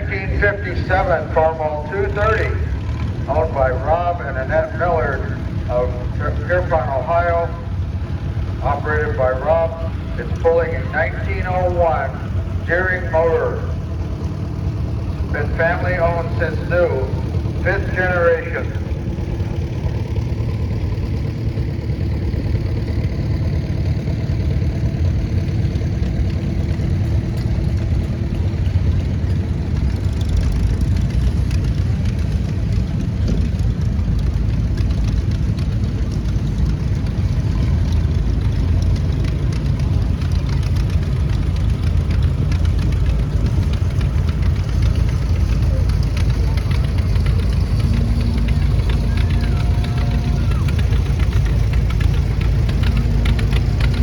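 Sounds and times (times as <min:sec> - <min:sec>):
tractor engine driving past: 0:00.0 - 0:54.0.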